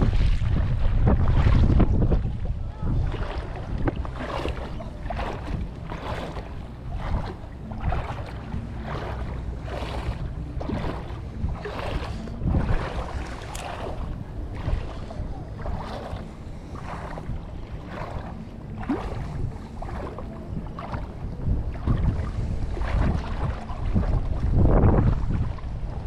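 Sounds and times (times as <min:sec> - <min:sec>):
waves slapping boat hull: 0:00.0 - 0:26.0
wind on microphone: 0:00.0 - 0:26.0.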